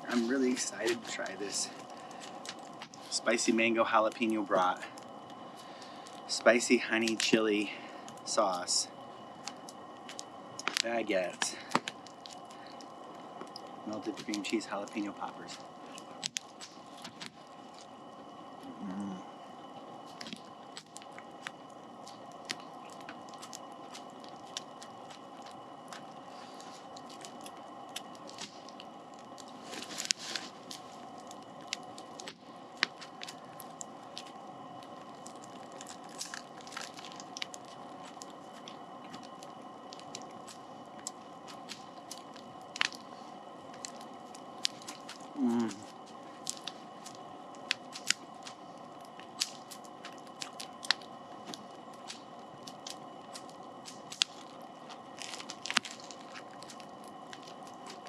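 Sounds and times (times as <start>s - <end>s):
campfire popping and crackling: 0.0s - 58.0s
crunchy bites and chewing: 0.0s - 58.0s
lantern hum: 0.0s - 58.0s
person humming: 18.6s - 19.3s, 45.4s - 45.9s.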